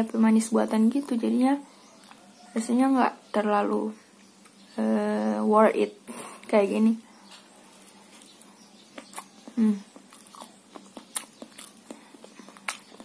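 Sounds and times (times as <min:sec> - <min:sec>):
wet chewing mouth clicks: 0:09.0 - 0:13.0
person humming: 0:09.6 - 0:09.9.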